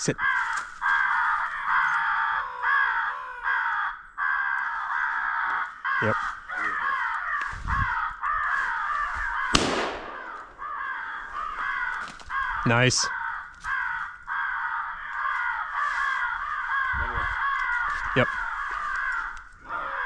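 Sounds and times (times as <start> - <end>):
crows cawing: 0.0 - 20.0
shotgun shot: 9.5 - 10.4.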